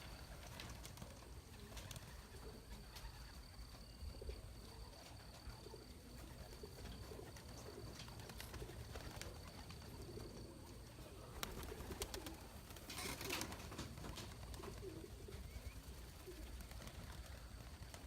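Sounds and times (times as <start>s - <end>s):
pigeons cooing: 0.0s - 18.0s
rustling: 11.4s - 15.5s.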